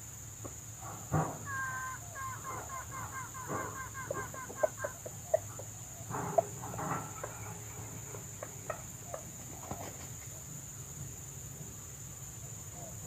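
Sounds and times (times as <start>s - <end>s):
high insect drone: 0.0s - 13.0s
junglefowl clucking: 1.1s - 10.5s.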